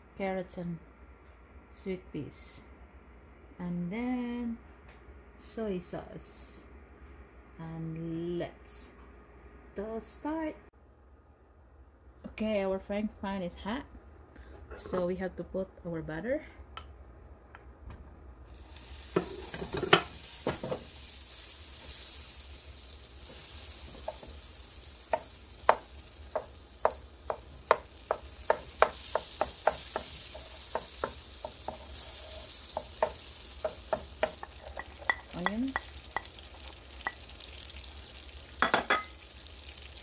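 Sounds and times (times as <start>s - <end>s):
butter sizzling in a frying pan: 18.4s - 40.0s.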